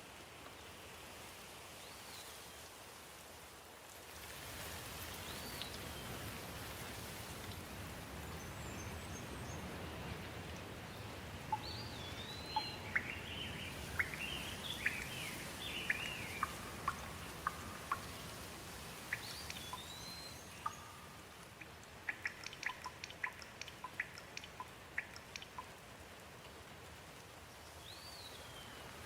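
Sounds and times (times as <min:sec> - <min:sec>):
steady rain falling: 0:00.0 - 0:29.0
birds calling: 0:11.0 - 0:25.7.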